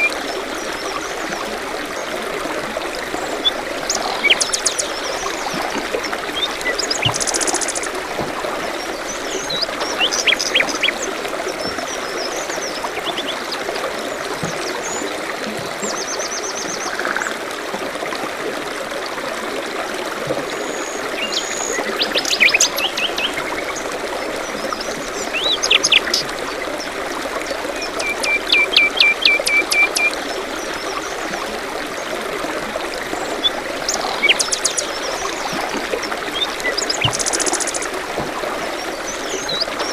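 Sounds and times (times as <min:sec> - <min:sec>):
stream trickling: 0:00.0 - 0:39.9
songbirds chirping: 0:03.1 - 0:17.0.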